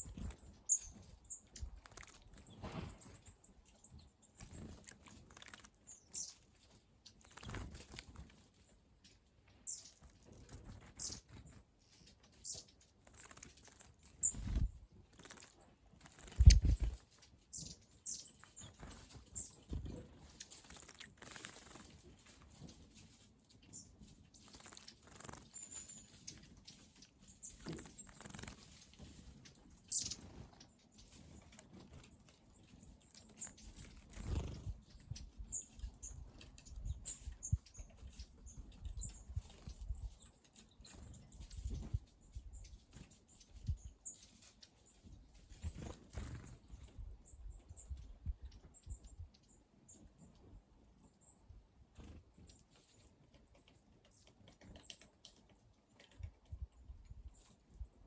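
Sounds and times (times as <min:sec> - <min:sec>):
high bird chirps: 0:00.0 - 0:06.4, 0:12.3 - 0:19.7, 0:29.8 - 0:30.7
birds splashing in water: 0:01.7 - 0:03.0, 0:04.4 - 0:05.9, 0:13.0 - 0:14.2, 0:15.1 - 0:16.6, 0:20.4 - 0:21.9.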